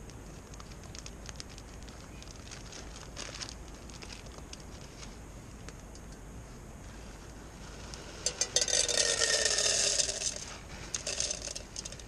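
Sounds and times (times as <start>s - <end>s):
popcorn kernels pattering into pot: 0.0s - 4.8s, 8.2s - 12.0s.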